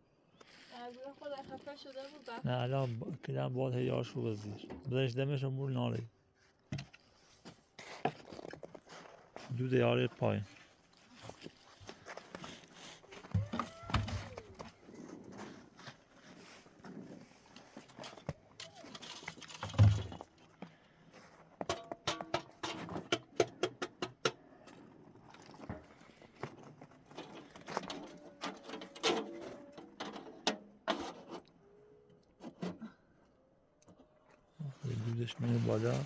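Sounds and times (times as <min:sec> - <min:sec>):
clicks and knocks of objects handled: 0:17.5 - 0:20.8, 0:21.5 - 0:32.9.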